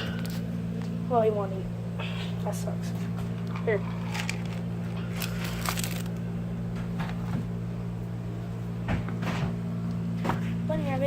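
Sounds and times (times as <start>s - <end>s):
low mechanical hum: 0.0s - 11.0s
handling rustles and clicks: 3.4s - 6.2s.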